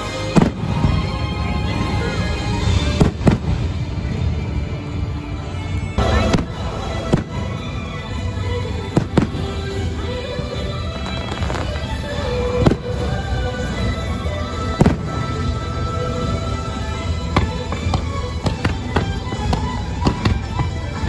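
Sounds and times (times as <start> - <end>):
fireworks bangs: 0.0 - 1.5, 2.1 - 4.2, 6.0 - 13.3, 14.6 - 16.4
show music: 0.0 - 21.0.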